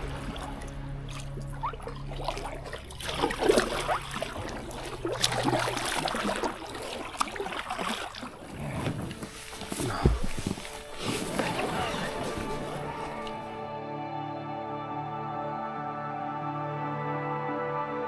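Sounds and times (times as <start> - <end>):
water dripping: 0.0 - 11.7
water splashing around a raft: 0.0 - 13.6.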